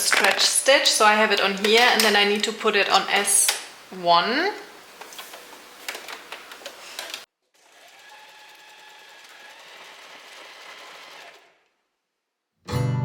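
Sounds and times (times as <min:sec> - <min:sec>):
sewing machine running: 0:07.5 - 0:11.7.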